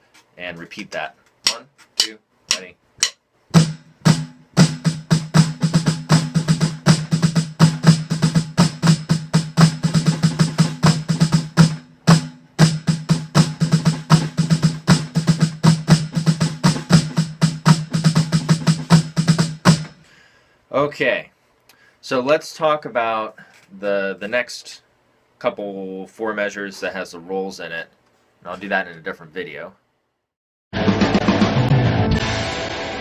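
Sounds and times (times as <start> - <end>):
snare drum playing: 1.4 - 20.0.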